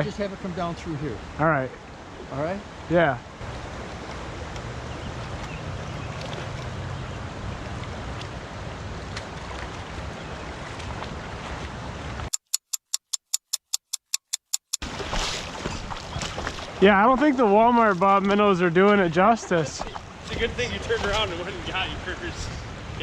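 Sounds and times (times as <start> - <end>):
creek water rushing: 0.0 - 12.3, 14.8 - 23.0
sharp ticks: 12.3 - 14.8.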